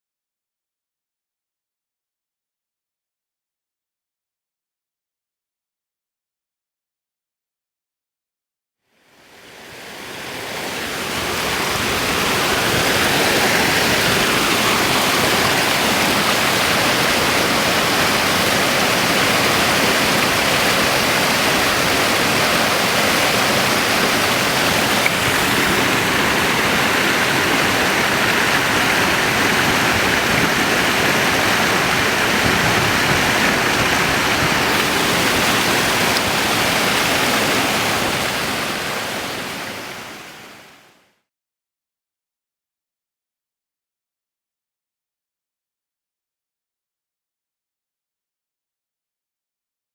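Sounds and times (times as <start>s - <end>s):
waterfall rushing: 9.1s - 40.8s.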